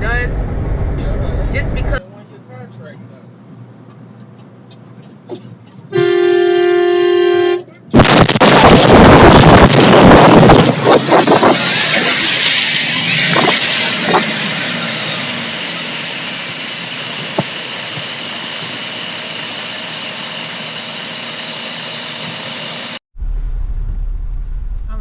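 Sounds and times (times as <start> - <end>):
loud hiss with high squeal: 15.1 - 23.0.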